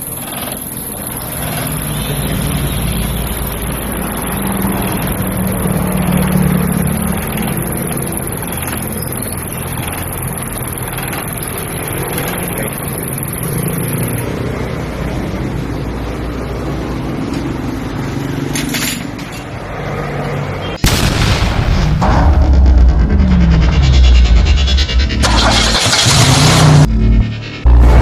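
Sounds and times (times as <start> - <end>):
diesel engine running: 0.0 - 18.4, 20.8 - 28.0
music: 26.9 - 28.0.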